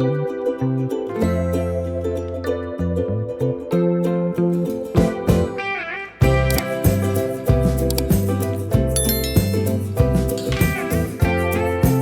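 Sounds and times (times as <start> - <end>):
low bass line: 0.0 - 5.5, 6.2 - 12.0
plucked notes: 0.0 - 12.0.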